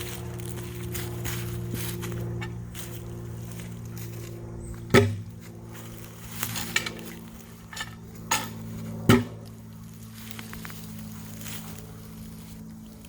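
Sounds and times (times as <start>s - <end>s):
steady low hum: 0.0s - 13.0s
sharp knocks: 4.9s - 5.3s, 8.3s - 9.4s.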